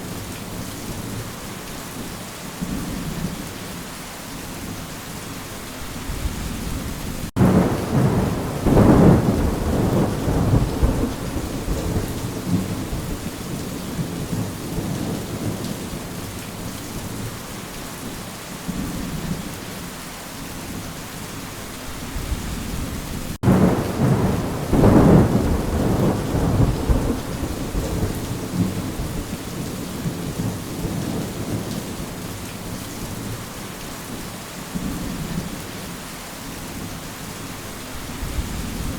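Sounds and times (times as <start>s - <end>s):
steady rain: 0.0s - 38.9s
thunder rumble: 6.1s - 15.6s, 22.2s - 31.8s.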